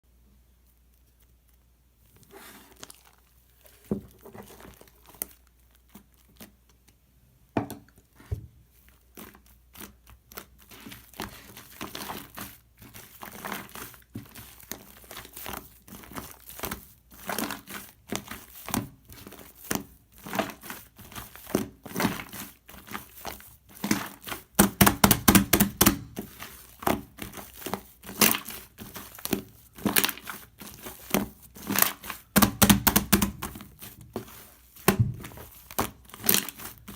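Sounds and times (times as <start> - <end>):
foam squeezed by hand: 2.2 - 5.3.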